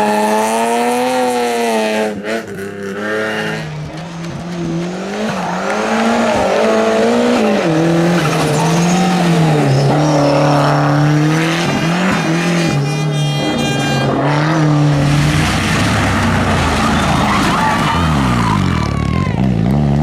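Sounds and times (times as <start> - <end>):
race car engine revving: 0.0 - 20.0
tyres squealing: 15.0 - 19.4.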